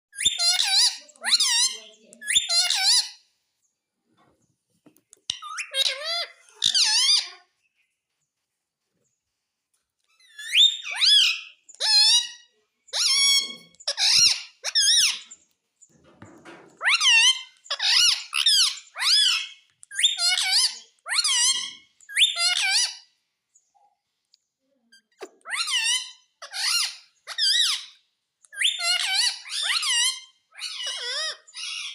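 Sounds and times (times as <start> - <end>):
parrot squeaky talking: 0.2 - 3.2, 5.3 - 7.5, 10.2 - 15.3, 16.8 - 23.0, 24.9 - 31.9.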